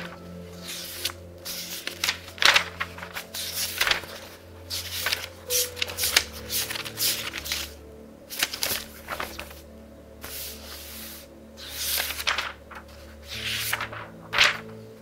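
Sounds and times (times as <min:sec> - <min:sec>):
book pages turning: 0:00.0 - 0:09.6, 0:10.2 - 0:15.0
soft background music: 0:00.0 - 0:15.0.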